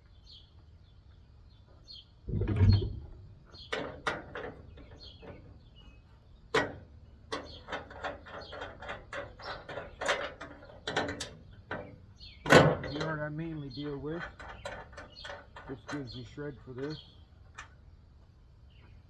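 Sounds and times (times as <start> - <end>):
heavy low thump: 2.3 - 3.5
metal clanks and clicks: 6.5 - 13.2.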